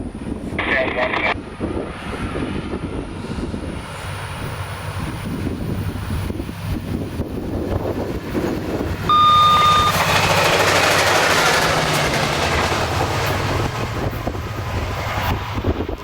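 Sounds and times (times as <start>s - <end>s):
diesel train passing: 0.0s - 0.6s, 1.3s - 16.0s
short high beep: 9.1s - 10.1s.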